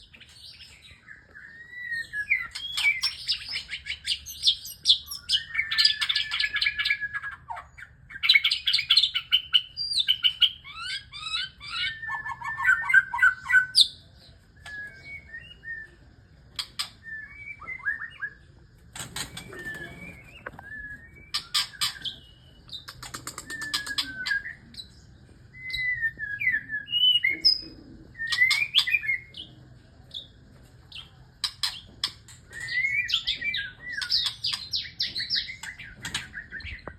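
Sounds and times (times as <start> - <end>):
bird singing whistled phrases: 0.2 - 7.4, 14.6 - 29.5, 32.5 - 36.9.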